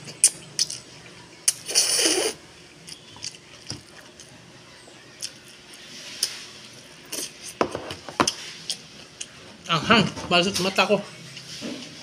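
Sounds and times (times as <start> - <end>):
man chewing food: 0.0 - 4.4, 5.0 - 9.7.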